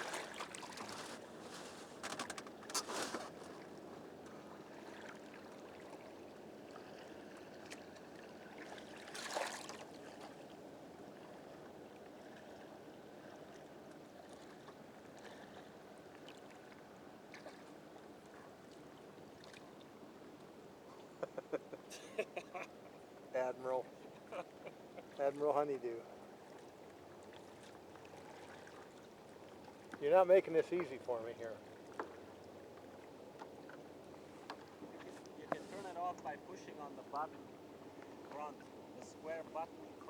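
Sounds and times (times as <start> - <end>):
water washing around kayak: 0.0 - 11.5, 24.0 - 32.4, 33.5 - 40.0
paddle splashes: 0.0 - 19.9, 26.1 - 40.0.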